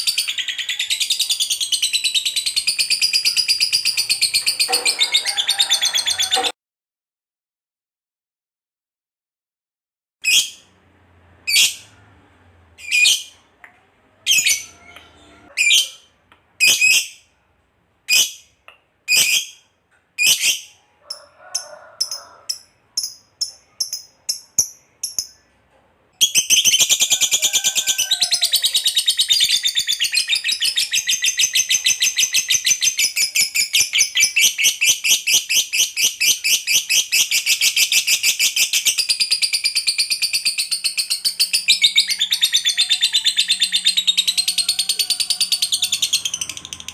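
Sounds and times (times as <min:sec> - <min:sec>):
lovebird chirping and trilling: 0:00.0 - 0:06.5, 0:10.2 - 0:10.7, 0:11.4 - 0:11.9, 0:12.8 - 0:13.4, 0:14.3 - 0:17.2, 0:19.1 - 0:19.6, 0:20.2 - 0:21.2, 0:22.0 - 0:25.5, 0:26.2 - 0:46.9.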